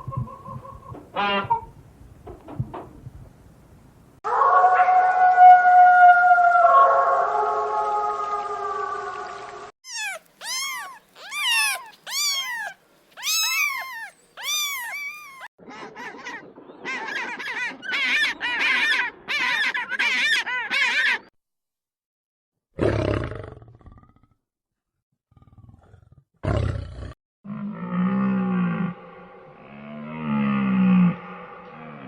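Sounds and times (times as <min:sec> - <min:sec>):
pitched animal cries: 0:09.8 - 0:21.2
loud low animal sound: 0:27.5 - 0:32.0.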